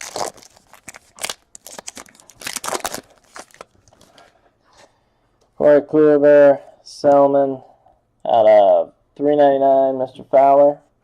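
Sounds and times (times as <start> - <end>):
card wrappers rustling and crinkling: 0.0 - 4.4.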